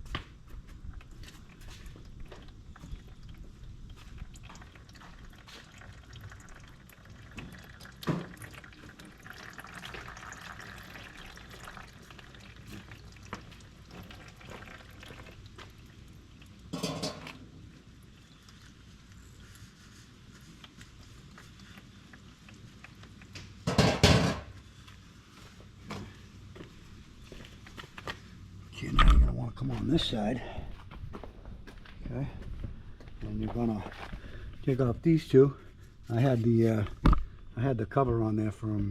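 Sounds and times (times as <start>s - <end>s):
engine oil pouring into drain pan: 3.1s - 18.1s.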